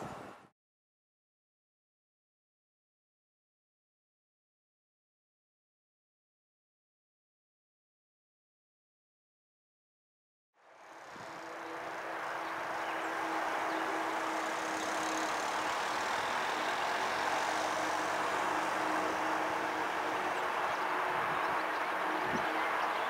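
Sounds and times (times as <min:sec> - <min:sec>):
approaching train rumble: 0:10.6 - 0:23.0
steady hum: 0:10.7 - 0:23.0.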